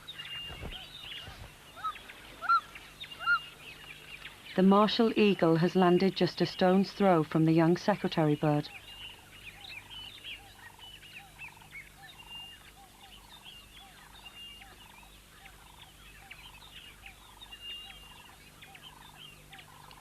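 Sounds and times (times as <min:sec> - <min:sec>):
birds chirping and whistling: 0:00.0 - 0:04.4, 0:08.4 - 0:20.0
low repeated bird call: 0:00.0 - 0:04.7, 0:07.8 - 0:20.0.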